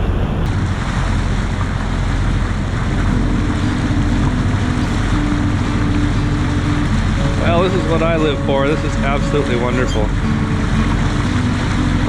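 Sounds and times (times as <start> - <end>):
water rushing past hull: 0.5 - 12.0
boat engine humming: 0.7 - 12.0.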